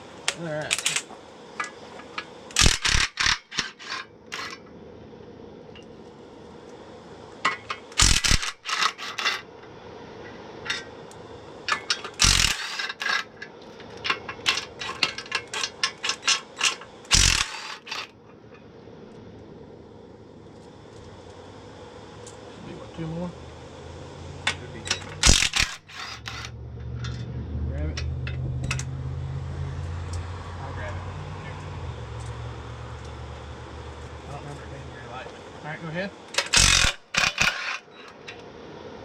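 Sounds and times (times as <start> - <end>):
impact wrench rattling bursts: 0.7 - 4.6, 7.4 - 9.4, 11.6 - 18.2, 24.4 - 27.2, 36.3 - 38.4.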